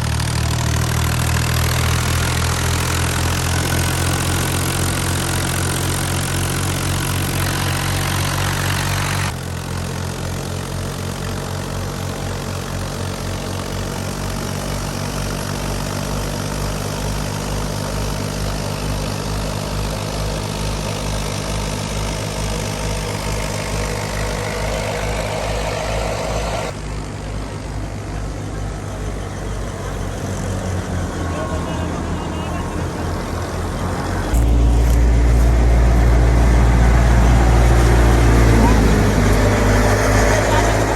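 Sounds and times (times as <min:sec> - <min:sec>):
tractor diesel engine running: 0:00.0 - 0:40.9
low pulsing: 0:22.0 - 0:40.9.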